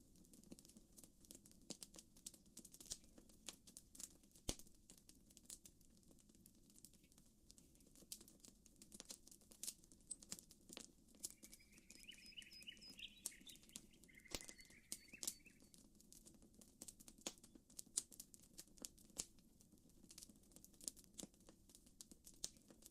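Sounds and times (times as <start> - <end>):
campfire crackling and popping: 0.1 - 22.9
bird chirping: 11.2 - 15.8.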